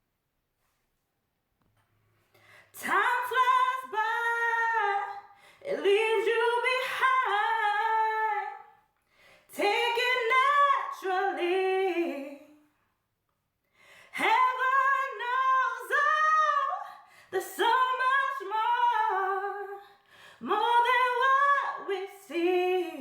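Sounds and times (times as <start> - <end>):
woman singing a cappella: 2.7 - 8.8, 9.5 - 12.8, 14.1 - 23.0.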